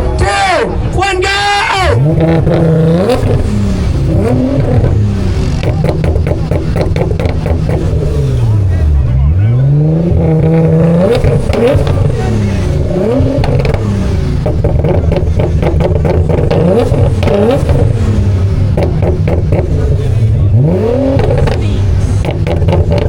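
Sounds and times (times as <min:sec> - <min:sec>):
car engines revving: 0:00.0 - 0:23.0
engine idle: 0:02.0 - 0:23.0
exhaust cracks and pops: 0:05.6 - 0:07.9, 0:13.3 - 0:18.0, 0:18.7 - 0:19.8, 0:21.2 - 0:23.0.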